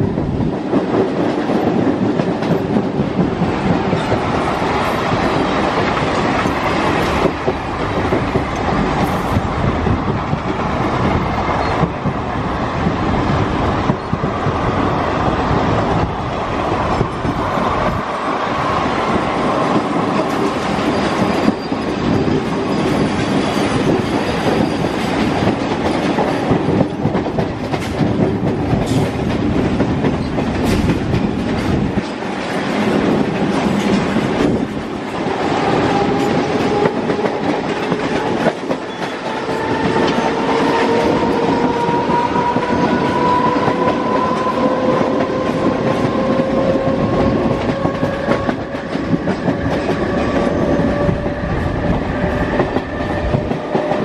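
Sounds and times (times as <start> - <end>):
train wheels clattering over rail joints: 19.4 - 54.0.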